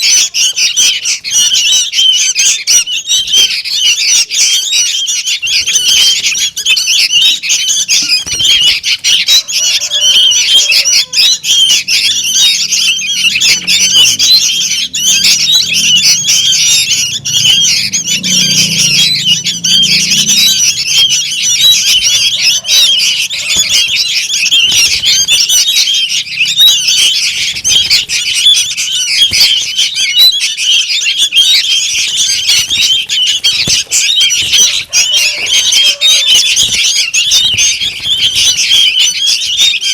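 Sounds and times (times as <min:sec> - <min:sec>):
young birds squawking: 0:00.0 - 0:39.9.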